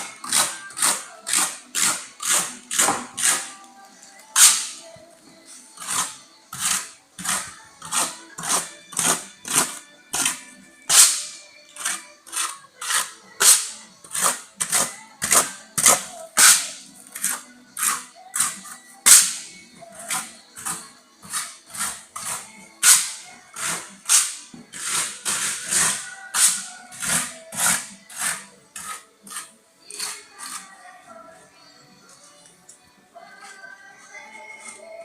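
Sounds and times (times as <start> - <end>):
hand tool striking a surface: 0.2 - 3.5, 4.4 - 4.8, 5.9 - 19.5, 20.1 - 29.4.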